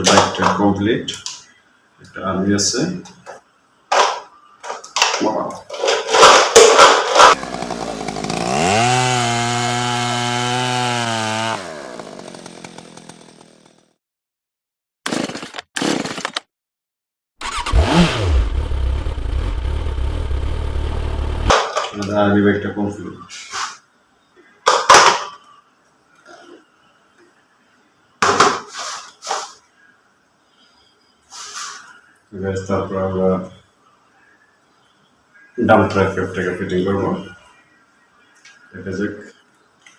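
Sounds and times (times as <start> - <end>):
motorbike engine revving: 7.3 - 13.2, 17.4 - 21.5.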